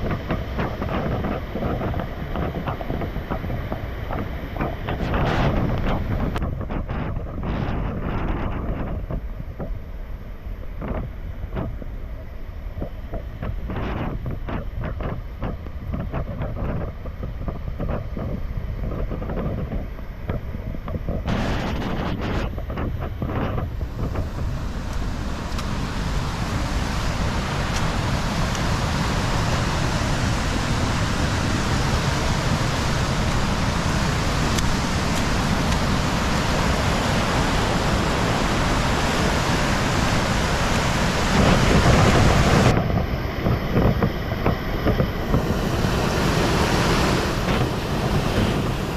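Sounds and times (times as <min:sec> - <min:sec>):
water rushing: 0:00.0 - 0:08.9, 0:21.1 - 0:48.9.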